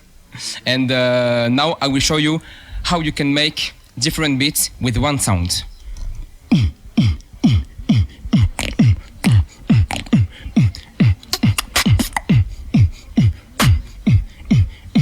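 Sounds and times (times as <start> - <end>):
person beatboxing: 6.4 - 15.0.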